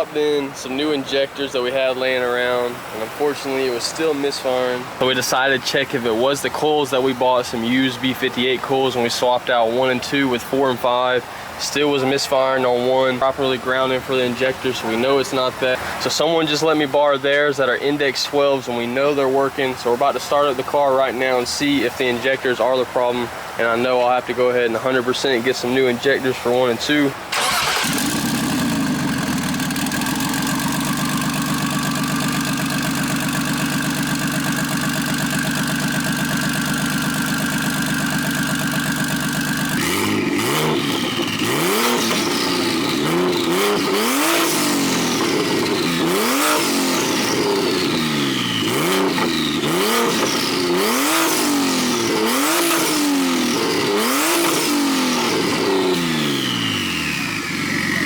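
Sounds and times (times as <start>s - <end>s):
car engine idling and revving: 27.2s - 58.0s.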